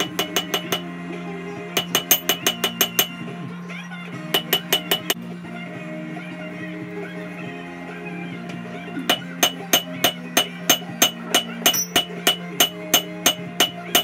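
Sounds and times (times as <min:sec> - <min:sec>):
bright anvil ring: 0:00.0 - 0:00.9, 0:01.8 - 0:03.2, 0:04.4 - 0:05.2, 0:09.1 - 0:14.0
hammer striking metal on anvil: 0:00.0 - 0:00.9, 0:01.8 - 0:03.2, 0:04.3 - 0:05.2, 0:09.1 - 0:14.0.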